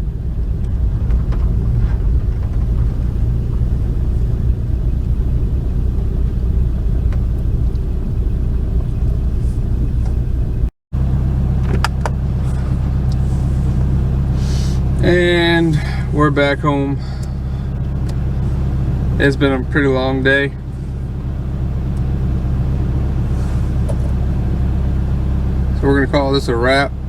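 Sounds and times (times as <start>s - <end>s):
car engine rumbling: 0.0s - 27.0s.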